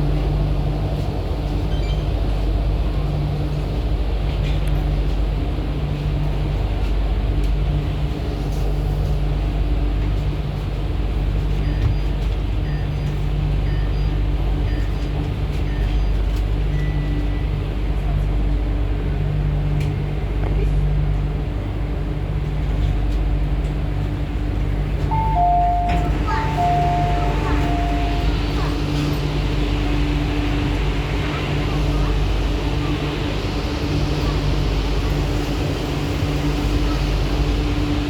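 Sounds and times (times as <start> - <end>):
train wheels rumbling on rail: 0.0 - 38.0
faint steady tones: 25.1 - 37.9.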